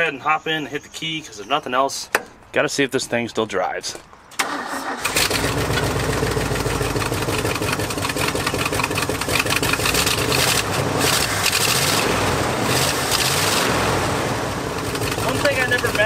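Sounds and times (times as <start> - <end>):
truck engine starting and running: 4.3 - 16.0.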